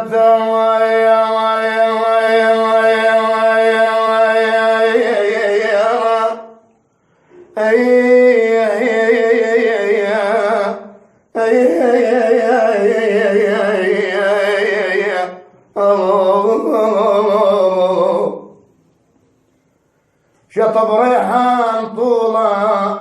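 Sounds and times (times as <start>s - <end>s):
person singing unaccompanied: 7.5s - 18.6s, 20.5s - 23.0s.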